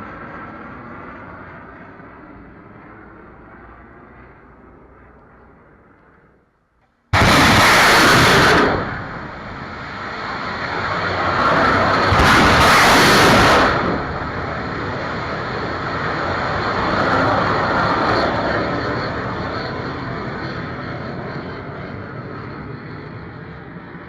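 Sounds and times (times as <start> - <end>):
missile launch roar: 7.1 - 16.1.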